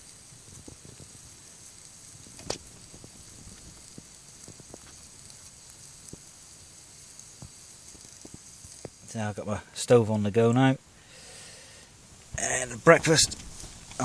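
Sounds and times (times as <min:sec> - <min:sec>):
small ticks: 0:00.0 - 0:09.3
stove burning with hiss: 0:00.0 - 0:14.0.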